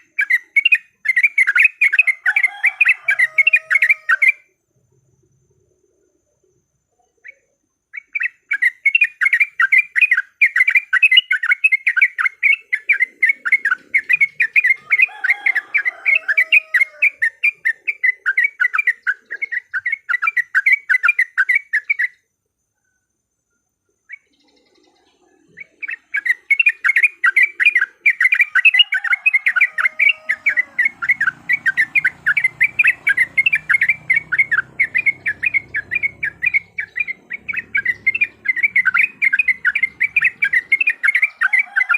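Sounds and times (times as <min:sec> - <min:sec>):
bird chattering calls: 0:07.2 - 0:22.2, 0:24.1 - 0:41.9
low gliding bird notes: 0:28.4 - 0:41.4.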